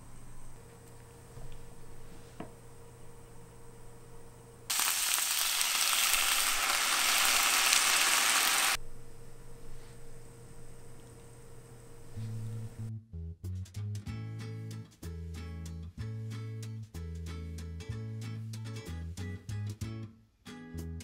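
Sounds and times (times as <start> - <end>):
meat sizzling in a frying pan: 4.7 - 8.8.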